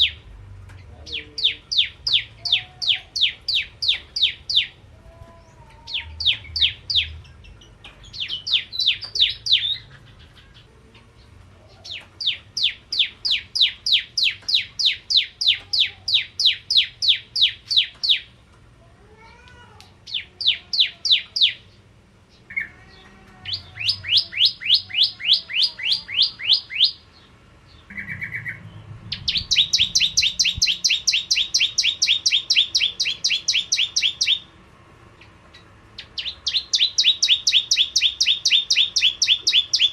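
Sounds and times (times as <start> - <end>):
bird rapid sharp chirps: 11.9 - 18.3, 23.6 - 34.5, 35.2 - 39.9.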